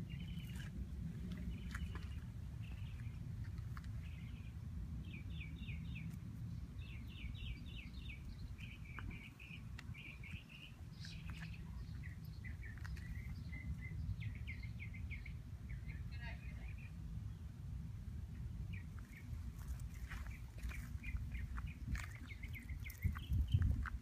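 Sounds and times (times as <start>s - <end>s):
songbirds chirping: 0.0s - 24.0s
steady low rumble: 0.0s - 24.0s.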